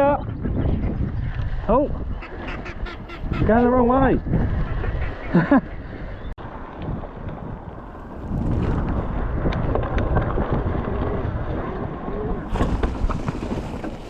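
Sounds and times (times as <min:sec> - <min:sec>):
wind buffeting microphone: 0:00.0 - 0:14.0
bike rolling on wet trail: 0:06.4 - 0:14.0
bike ticks and rattles: 0:06.4 - 0:14.0.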